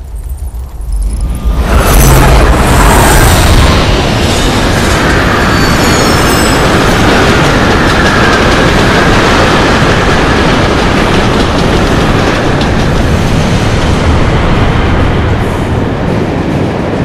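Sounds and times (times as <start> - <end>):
train rumbling past: 0.0 - 17.0
wheels clattering on rails: 0.0 - 17.0
high wheel squeals: 0.1 - 7.2.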